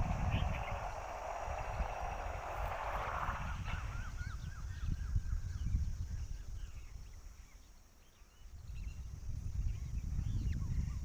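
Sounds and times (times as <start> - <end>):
low microphone rumble: 0.0 - 7.0
bird chirping: 0.0 - 11.0.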